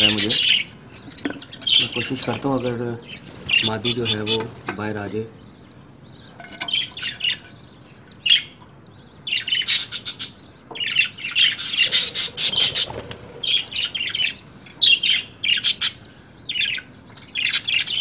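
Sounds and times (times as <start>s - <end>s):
budgerigars chirping and squawking: 0.0s - 18.0s.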